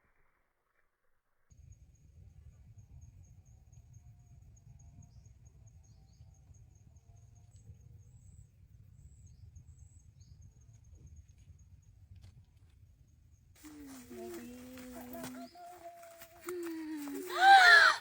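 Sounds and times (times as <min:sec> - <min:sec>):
high pulsing insect trill: 0:13.6 - 0:18.0.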